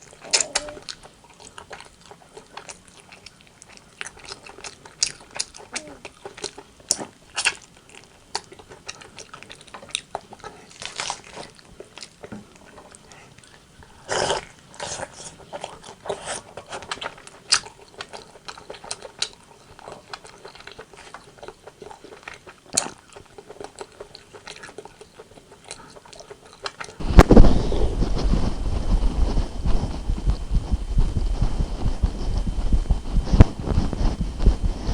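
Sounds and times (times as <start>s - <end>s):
chewing and crunching: 0.0s - 34.9s
deep muffled noise: 27.0s - 34.9s.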